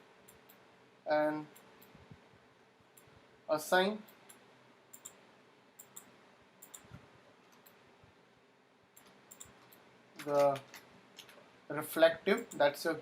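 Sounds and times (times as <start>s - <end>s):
computer mouse clicking: 4.1s - 5.2s, 5.8s - 7.8s, 9.0s - 11.4s.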